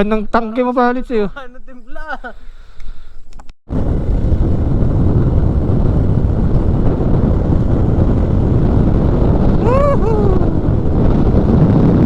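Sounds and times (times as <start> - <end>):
wind buffeting microphone: 3.3 - 12.0
motorcycle running noise: 3.8 - 12.0.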